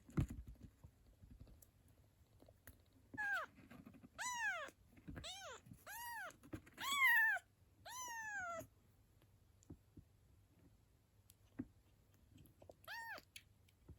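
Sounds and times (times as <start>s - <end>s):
kitten meowing: 3.2s - 3.5s, 4.2s - 8.6s, 12.8s - 13.4s.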